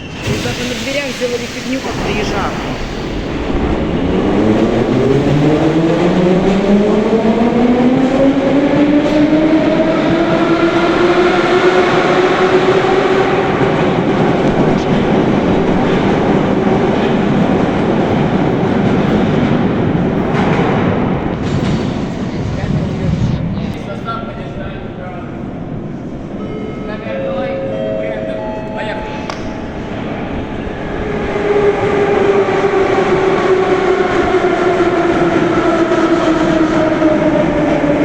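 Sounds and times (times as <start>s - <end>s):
wheel and track rumble: 0.0s - 26.4s.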